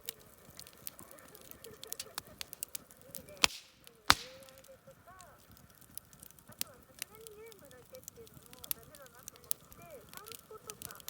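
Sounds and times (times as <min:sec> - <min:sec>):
campfire crackling: 0:00.0 - 0:11.0
short hiss: 0:03.4 - 0:04.6
loud sharp snaps: 0:03.4 - 0:04.7.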